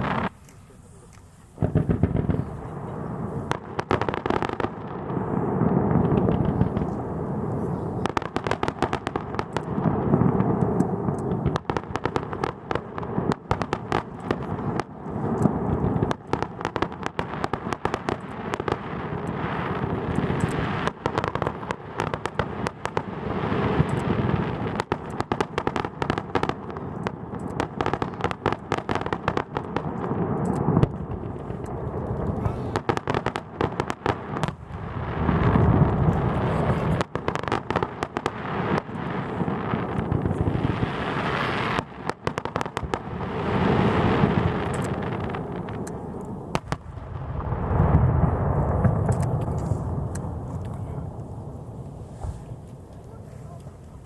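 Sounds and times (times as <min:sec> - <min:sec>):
firework shells booming: 0:00.0 - 0:54.0
fireworks crackling and popping: 0:00.0 - 0:54.0.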